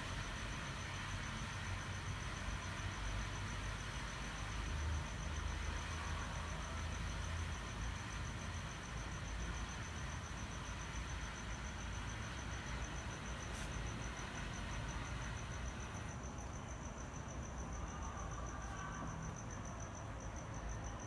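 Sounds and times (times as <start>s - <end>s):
steady hiss: 7.6s - 16.6s.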